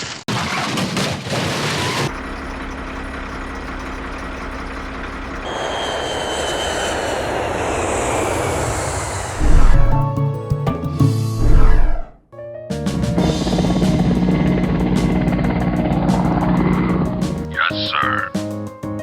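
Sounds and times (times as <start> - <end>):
airplane engine drone: 2.1 - 12.1, 13.0 - 18.2.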